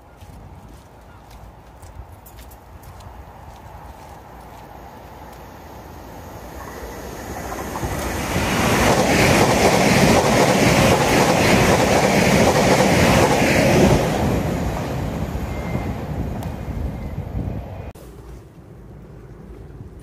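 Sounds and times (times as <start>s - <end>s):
train wheels clickety-clack: 6.6s - 14.9s.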